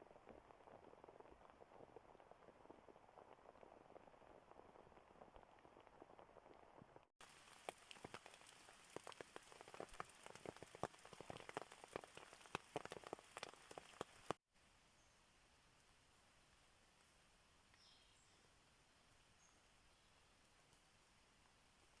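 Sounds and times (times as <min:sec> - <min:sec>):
rain drops pattering: 0:00.0 - 0:14.4
faint steady hiss: 0:00.0 - 0:22.0.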